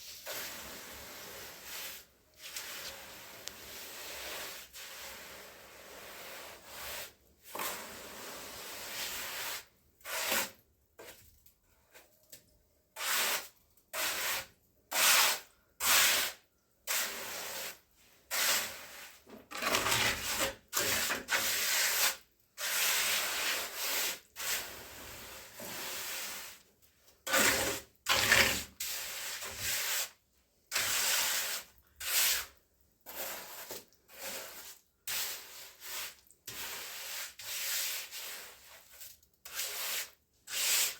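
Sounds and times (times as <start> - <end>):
hand tool scraping rough surface: 13.0 - 26.6, 27.2 - 40.9.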